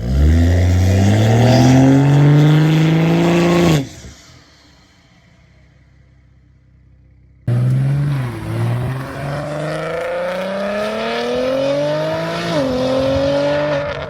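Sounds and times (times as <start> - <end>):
car engine accelerating hard: 0.0 - 4.2, 7.4 - 14.0.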